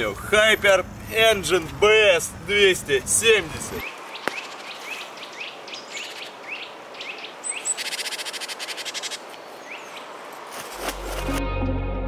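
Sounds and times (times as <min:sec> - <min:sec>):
small birds chirping: 0:03.6 - 0:10.2
buzzy bird trill: 0:04.4 - 0:09.8.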